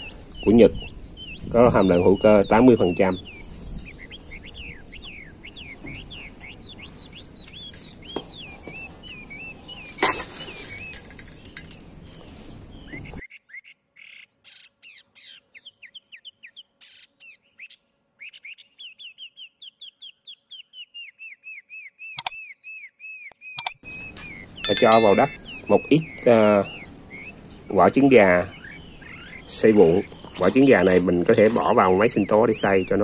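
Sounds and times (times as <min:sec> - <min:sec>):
small bird chirping: 0:12.8 - 0:22.7, 0:23.3 - 0:23.8, 0:24.6 - 0:25.7.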